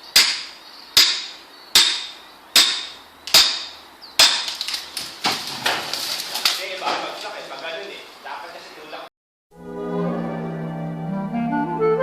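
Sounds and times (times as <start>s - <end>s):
heavy tool striking wood: 0.2s - 6.1s
light cracks and clicks: 4.4s - 7.8s.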